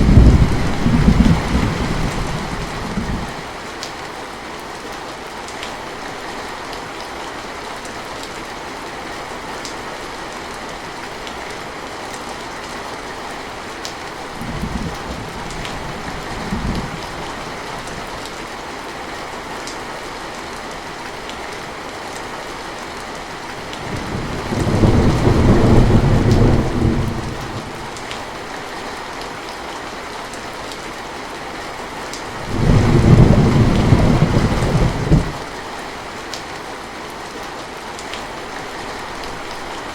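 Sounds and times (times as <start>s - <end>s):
thunder rumbling: 0.0s - 3.4s, 14.4s - 18.1s, 23.7s - 28.1s, 32.4s - 35.5s
steady rain falling: 0.0s - 39.9s.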